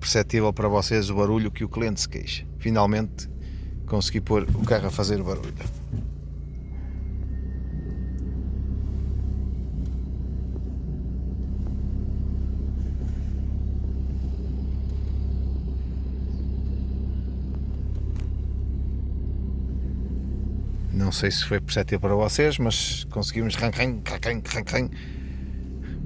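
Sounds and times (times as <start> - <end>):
diesel engine low rumble: 0.0 - 26.0.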